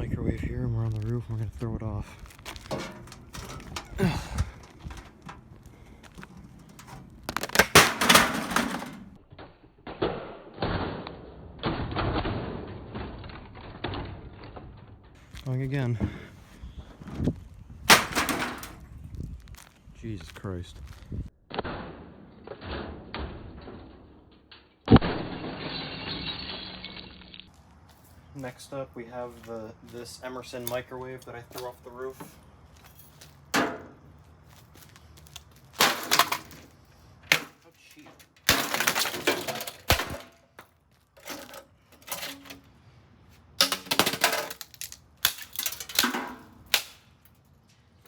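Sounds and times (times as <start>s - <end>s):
rattling clatter: 2.5s - 9.2s
microwave oven crashing onto ground: 2.6s - 5.5s, 6.7s - 9.2s, 17.9s - 18.8s.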